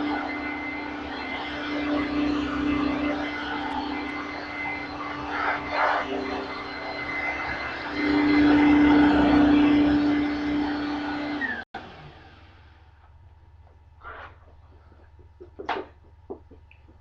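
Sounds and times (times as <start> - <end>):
vacuum cleaner motor hum: 0.0 - 12.6.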